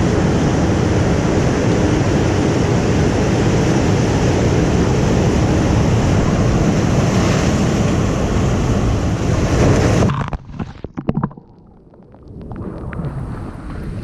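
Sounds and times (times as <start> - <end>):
ocean surf rushing: 0.0 - 10.9
wind on microphone: 0.0 - 11.0.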